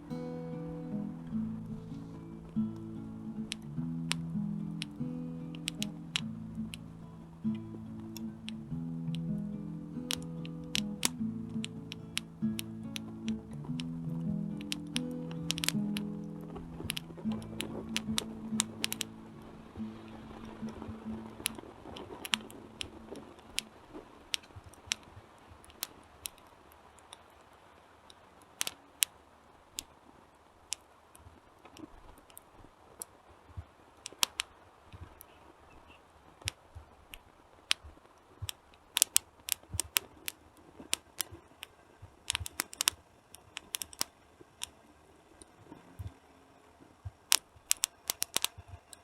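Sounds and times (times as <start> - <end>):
wood fire crackling and popping: 0.0 - 27.4, 34.0 - 35.2, 36.4 - 44.8, 47.0 - 49.0
faint low hiss: 0.0 - 49.0.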